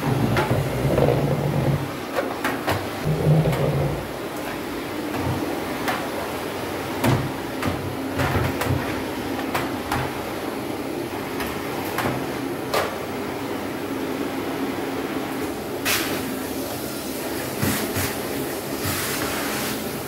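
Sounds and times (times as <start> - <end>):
vacuum cleaner running: 0.0 - 8.4, 14.4 - 20.0.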